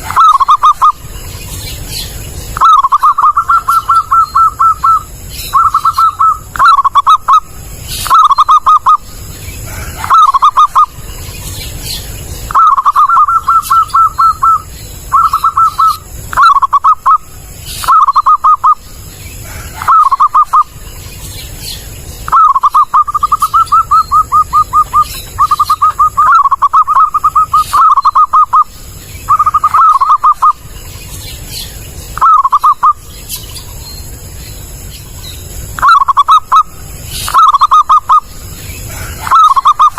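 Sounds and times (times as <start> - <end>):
dove cooing: 0.0 - 1.1, 2.6 - 11.0, 12.5 - 20.8, 22.3 - 30.6, 32.2 - 33.0, 35.8 - 39.9.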